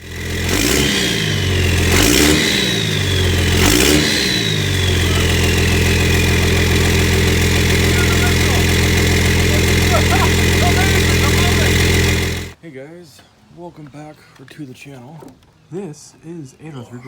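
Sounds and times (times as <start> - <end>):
engine revving: 0.0 - 12.6
high turbo whistle: 0.4 - 12.6.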